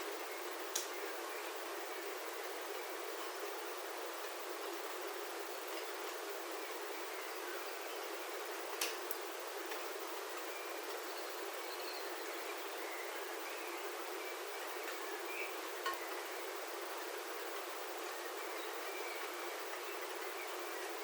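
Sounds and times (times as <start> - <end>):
rain pattering on a roof: 8.3 - 11.0
faint bird chirps: 10.3 - 21.0.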